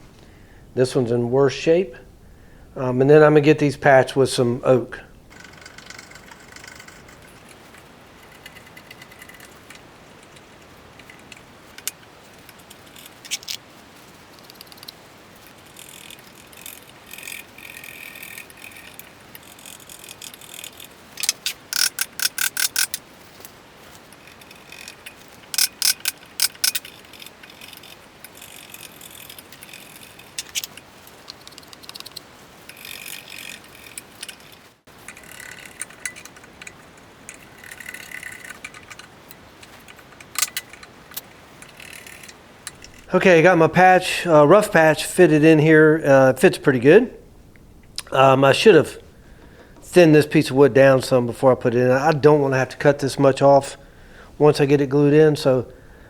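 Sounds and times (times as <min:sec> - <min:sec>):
rapid clicking: 0:05.3 - 0:43.4.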